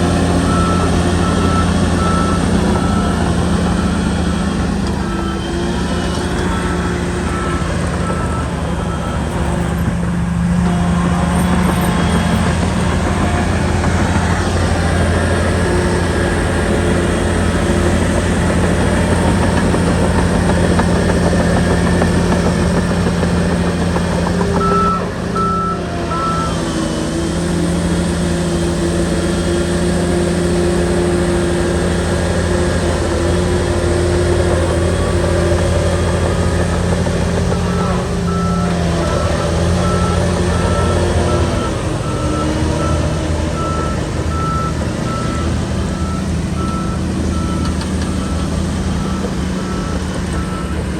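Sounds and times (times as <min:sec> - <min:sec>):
bulldozer diesel engine: 0:00.0 - 0:50.9
reversing alarm beeps: 0:00.4 - 0:18.0, 0:18.6 - 0:26.9, 0:37.5 - 0:50.9.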